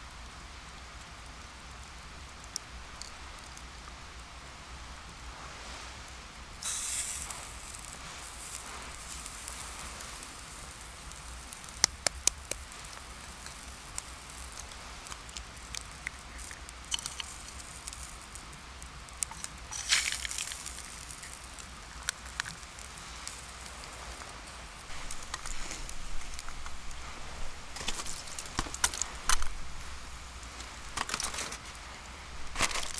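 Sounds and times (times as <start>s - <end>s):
campfire crackling: 0.0s - 32.9s
rustling: 5.4s - 32.9s
sharp pops: 11.6s - 15.9s.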